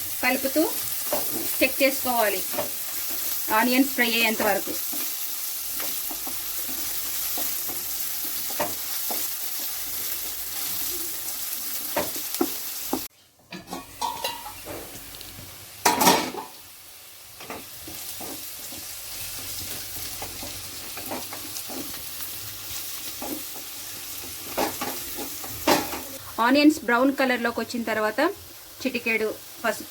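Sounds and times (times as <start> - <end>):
onions sizzling in oil: 0.0 - 29.9
metal clattering on pan: 13.5 - 14.8, 15.8 - 16.6.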